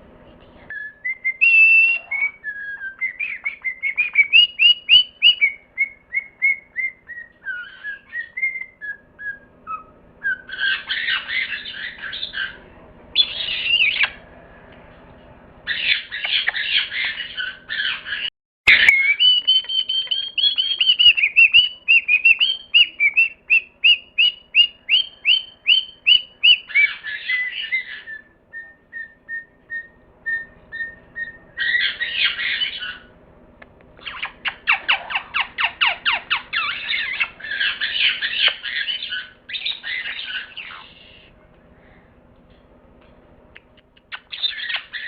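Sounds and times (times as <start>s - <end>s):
bird chirps: 0.7s - 14.3s, 15.7s - 33.1s, 34.0s - 41.3s, 43.6s - 45.0s
bird squawks: 9.7s - 14.3s, 15.7s - 33.1s, 34.0s - 41.3s, 43.6s - 45.0s.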